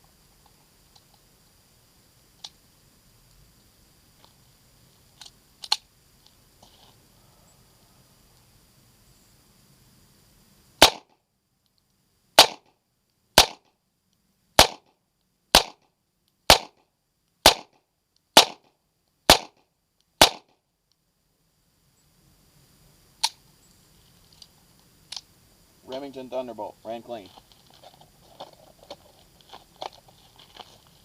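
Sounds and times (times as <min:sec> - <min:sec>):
gunshots: 0:10.8 - 0:11.1, 0:12.4 - 0:12.7, 0:13.4 - 0:13.6, 0:14.6 - 0:14.8, 0:15.6 - 0:15.8, 0:16.5 - 0:16.8, 0:17.4 - 0:17.7, 0:18.4 - 0:18.7, 0:19.3 - 0:19.6, 0:20.2 - 0:20.5
faint click: 0:11.6 - 0:12.0, 0:20.8 - 0:21.0, 0:24.2 - 0:25.3.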